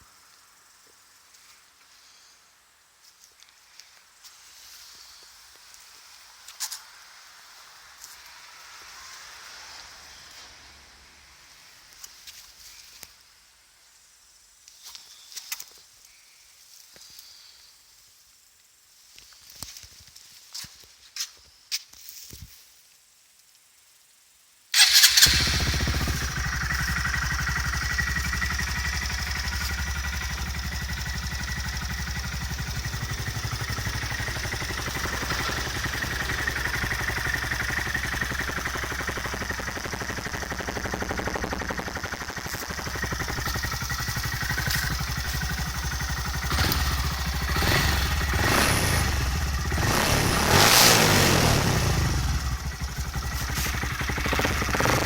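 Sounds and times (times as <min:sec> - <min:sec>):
motorcycle engine idling and revving: 0:24.8 - 0:55.0.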